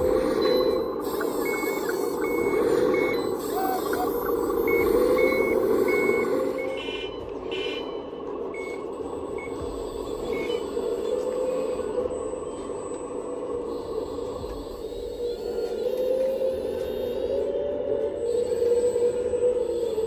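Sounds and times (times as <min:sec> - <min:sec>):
reversing beeper: 0:00.0 - 0:15.9.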